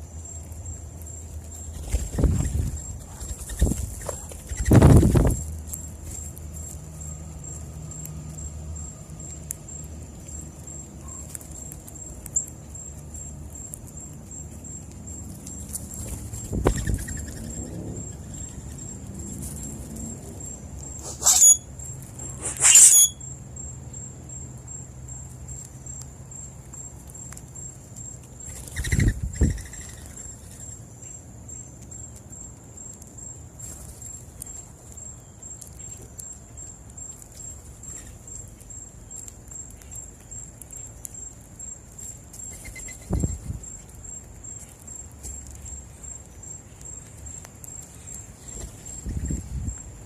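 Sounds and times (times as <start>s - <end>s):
high-pitched pulsing whine: 20.9s - 23.3s.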